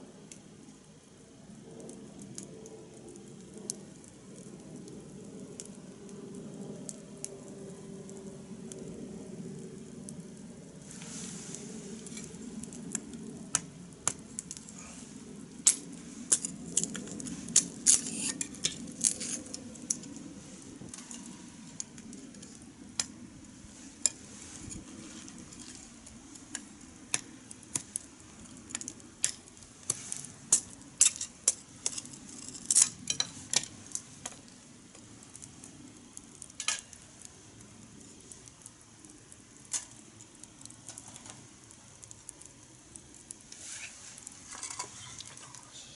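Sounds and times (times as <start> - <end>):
low steady rush: 0.0 - 45.9
wood fire crackling and popping: 0.0 - 45.9.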